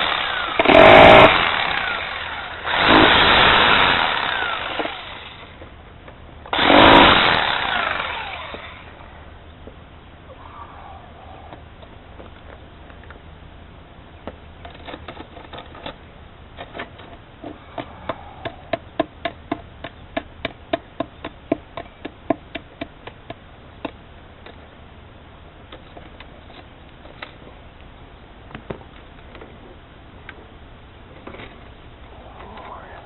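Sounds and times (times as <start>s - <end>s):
hammer tapping sharp knocks: 17.4s - 24.0s.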